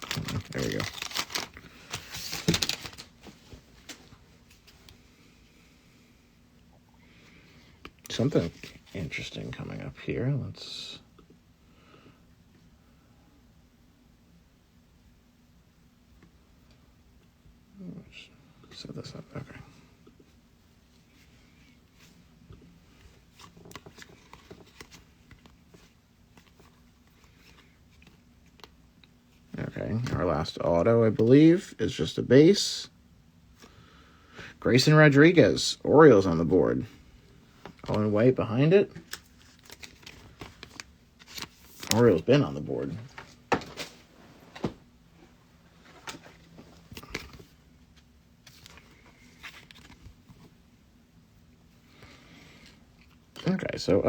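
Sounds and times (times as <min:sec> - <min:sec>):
trading cards shuffling: 0:00.0 - 0:04.7, 0:38.9 - 0:44.8.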